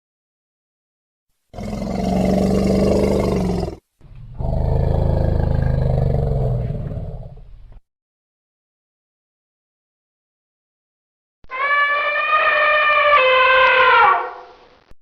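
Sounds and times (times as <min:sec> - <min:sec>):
animal roaring: 0:01.6 - 0:07.4.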